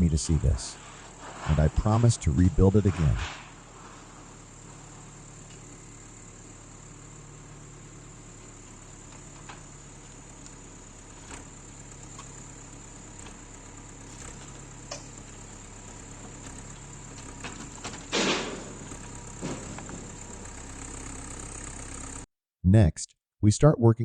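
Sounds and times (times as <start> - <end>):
diesel engine running: 0.0 - 22.2
loud crash: 0.5 - 5.3, 17.7 - 20.7
knocks and cracks: 16.2 - 20.7.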